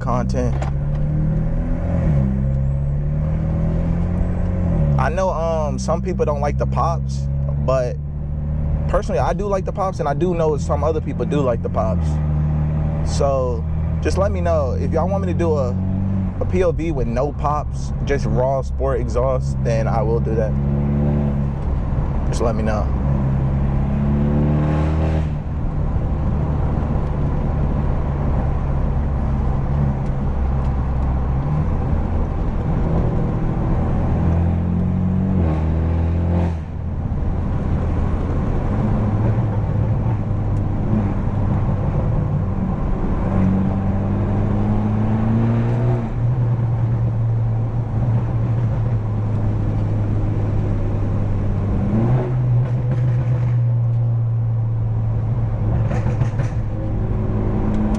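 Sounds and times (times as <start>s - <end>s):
car engine accelerating: 0.0s - 57.9s
exhaust pops: 13.0s - 24.2s, 25.2s - 35.7s, 46.7s - 57.9s.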